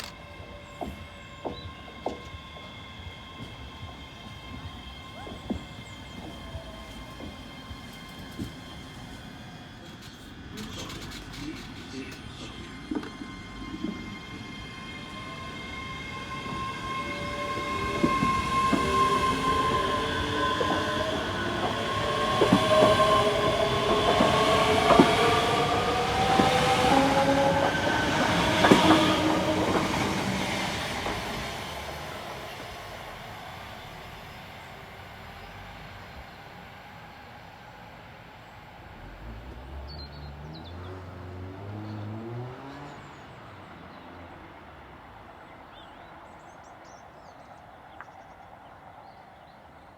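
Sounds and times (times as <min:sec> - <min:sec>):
wheels clicking over rail joints: 0:00.0 - 0:13.2
train passing: 0:00.0 - 0:49.9.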